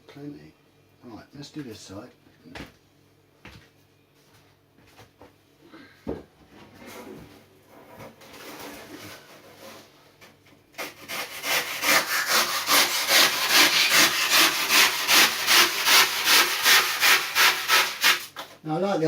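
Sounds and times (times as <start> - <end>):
hand saw cutting foam: 10.8 - 18.4.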